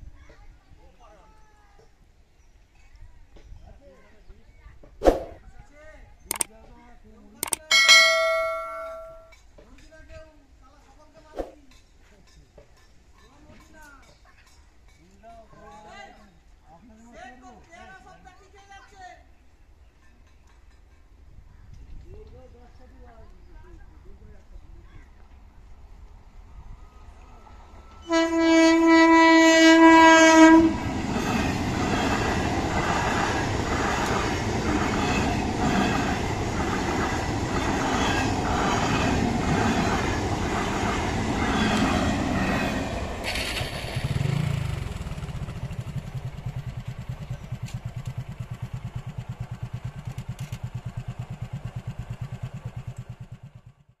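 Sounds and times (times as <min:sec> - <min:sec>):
train horn blast: 0:28.0 - 0:30.9
train wheels clattering over rail joints: 0:30.8 - 0:51.2.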